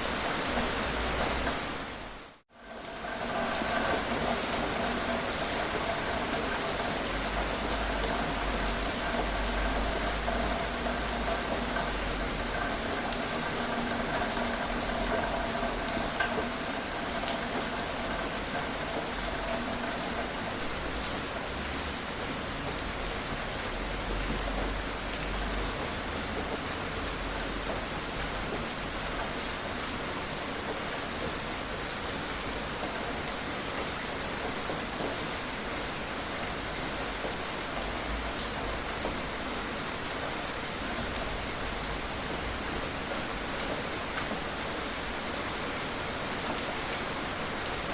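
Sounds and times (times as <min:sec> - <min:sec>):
gentle rain falling: 0:00.0 - 0:47.9.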